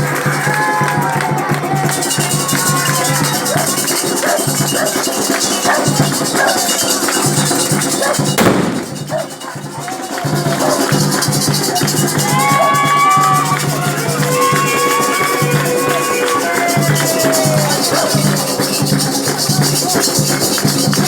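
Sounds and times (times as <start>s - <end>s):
drum beat: 0.0s - 21.0s
voices singing: 0.0s - 21.0s
shaken rattle: 1.9s - 21.0s
loud rush: 2.3s - 9.5s.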